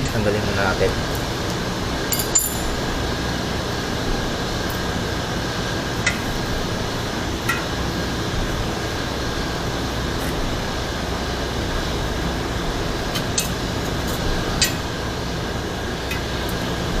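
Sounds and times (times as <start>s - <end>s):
fan-like hum: 0.0s - 17.0s
light metallic clinks: 2.1s - 2.8s.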